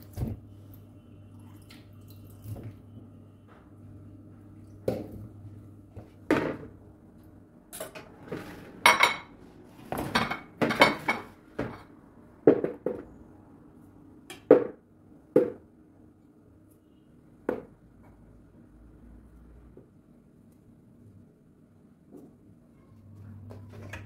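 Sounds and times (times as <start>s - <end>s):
dishes and utensils clinking: 7.7s - 11.9s.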